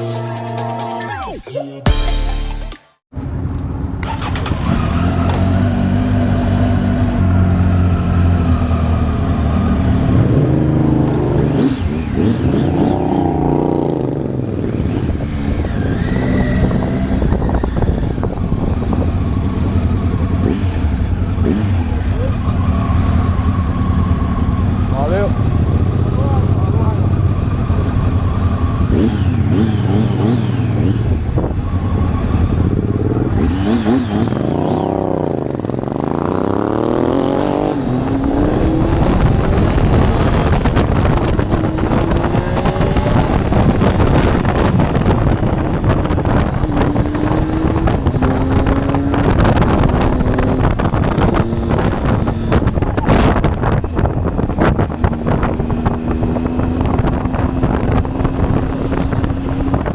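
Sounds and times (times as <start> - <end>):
motorcycle engine: 1.9 - 59.9
wind rush on microphone: 10.1 - 21.4, 37.4 - 59.9.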